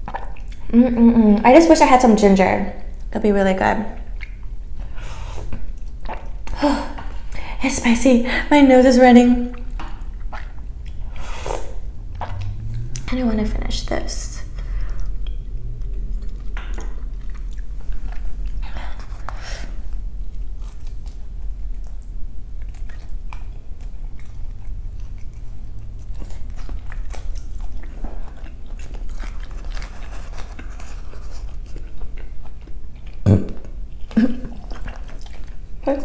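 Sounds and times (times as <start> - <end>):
wet mouth clicks and smacks: 0.0 - 0.7, 4.0 - 4.6, 9.5 - 11.2, 12.1 - 13.1
person chewing food: 0.0 - 0.8, 4.0 - 7.4, 9.5 - 13.1, 14.4 - 35.8.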